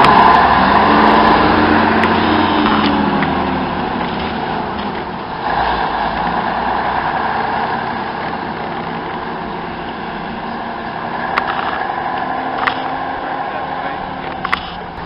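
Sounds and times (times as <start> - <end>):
diesel bus engine running: 0.0 - 15.0.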